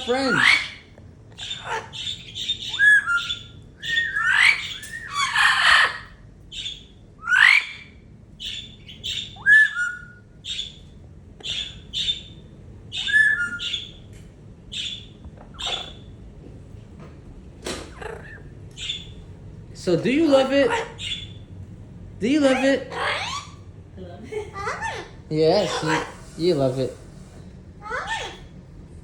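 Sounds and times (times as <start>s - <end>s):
parrot squawks: 0.0s - 14.0s, 14.7s - 16.1s, 17.9s - 19.2s, 20.4s - 21.4s, 22.5s - 23.6s, 24.6s - 26.3s, 27.8s - 28.5s
parrot chirping: 0.0s - 16.2s, 17.8s - 19.4s, 20.2s - 21.6s, 22.3s - 23.8s, 24.4s - 27.0s, 27.8s - 28.6s
parrot whistling: 1.4s - 10.8s, 11.4s - 14.1s, 14.7s - 16.1s.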